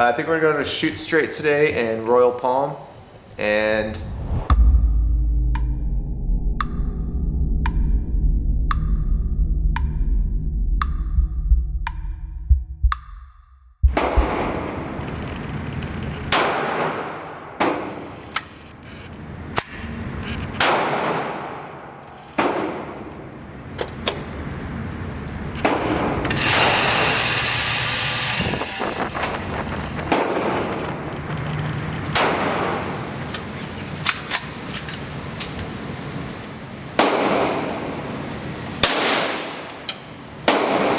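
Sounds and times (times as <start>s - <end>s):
gunshots with echoing decay: 13.9s - 15.0s, 16.3s - 18.2s, 20.6s - 23.2s, 30.0s - 31.0s, 32.1s - 33.2s, 37.0s - 38.0s, 38.8s - 39.7s, 40.5s - 40.9s.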